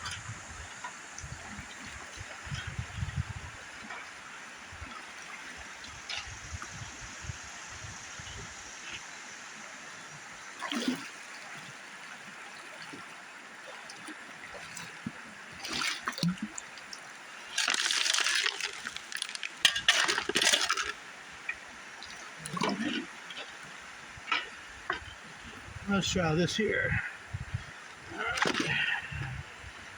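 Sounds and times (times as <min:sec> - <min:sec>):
river water running: 0:00.0 - 0:29.9
splashing and scraping gravel: 0:17.4 - 0:21.1, 0:28.1 - 0:29.2.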